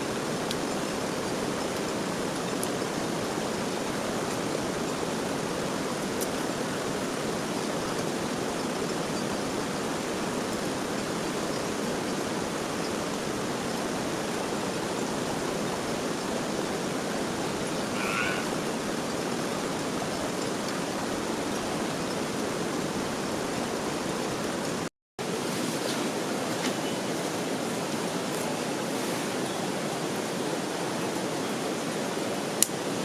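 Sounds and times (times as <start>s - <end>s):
loud hiss of water: 0.0s - 33.0s
faint high chirp: 17.8s - 18.6s.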